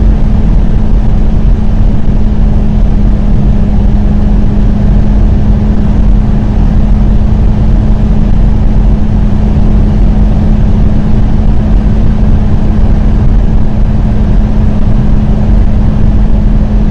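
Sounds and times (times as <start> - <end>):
car engine drone: 0.0 - 16.9
road and wind rumble: 0.0 - 16.9.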